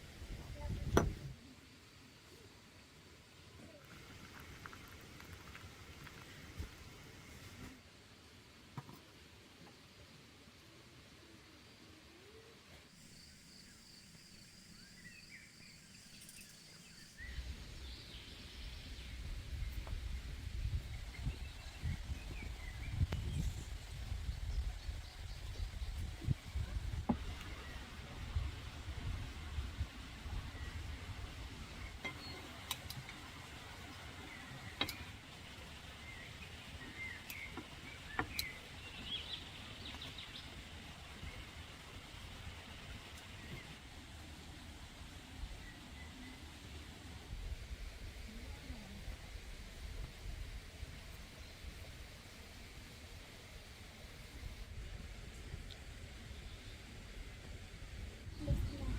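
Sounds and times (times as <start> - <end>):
low wind-like rumble: 0.0 - 1.4, 17.2 - 37.2, 37.9 - 58.9
insect trill: 12.9 - 17.8
small birds chirping: 12.9 - 28.0, 31.6 - 40.6
bird chirps: 13.0 - 18.5.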